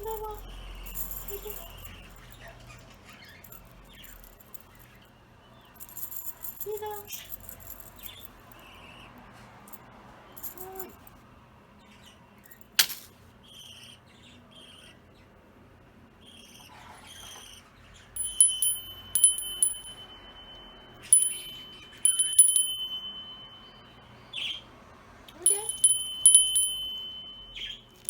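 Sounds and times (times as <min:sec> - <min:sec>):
metal chain toy jingling: 0:00.0 - 0:05.0, 0:05.8 - 0:08.7, 0:10.4 - 0:11.1, 0:18.2 - 0:23.9, 0:25.3 - 0:28.0.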